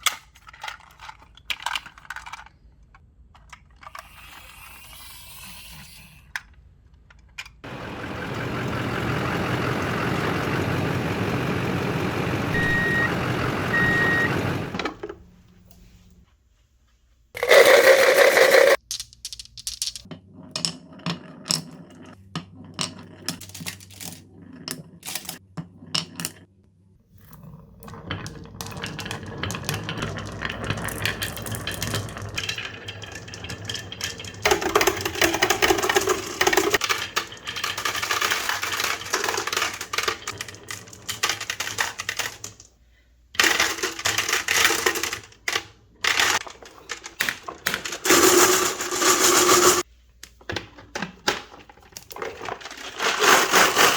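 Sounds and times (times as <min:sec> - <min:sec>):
marbles clattering down wooden run: 0:27.9 - 0:42.7, 0:43.4 - 0:49.8, 0:52.1 - 0:53.9.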